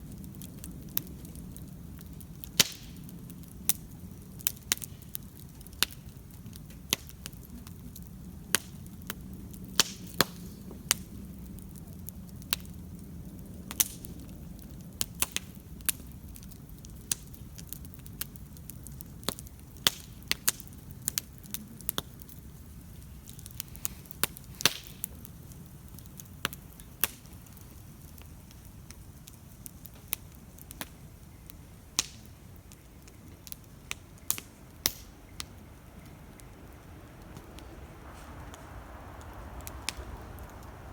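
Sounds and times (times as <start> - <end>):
campfire crackles and pops: 0.0 - 40.9
low rumble of flames: 0.0 - 40.9.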